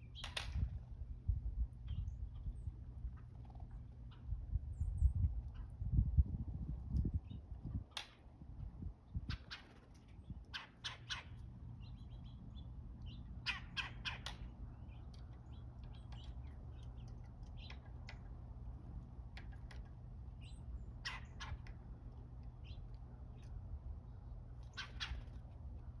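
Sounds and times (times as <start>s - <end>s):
steady low hum: 0.0s - 10.6s, 11.2s - 26.0s
harsh raspy bird calls: 10.5s - 11.4s, 13.4s - 14.5s, 21.0s - 21.7s
faint bird chirps: 20.3s - 21.8s, 24.6s - 25.5s.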